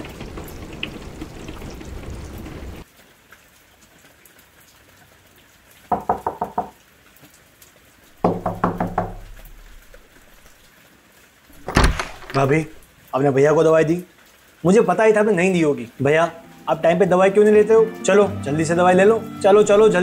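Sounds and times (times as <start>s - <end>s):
rapid knocking: 5.9s - 6.7s, 8.2s - 10.0s.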